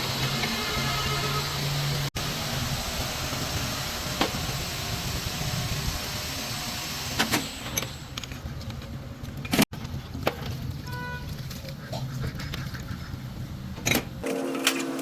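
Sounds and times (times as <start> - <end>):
machine hissing and humming: 0.0 - 8.2.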